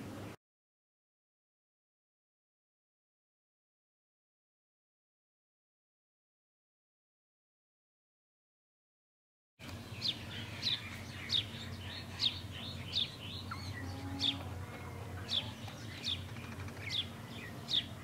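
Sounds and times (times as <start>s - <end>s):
low steady hum: 9.6s - 18.0s
small bird chirping: 9.8s - 18.0s.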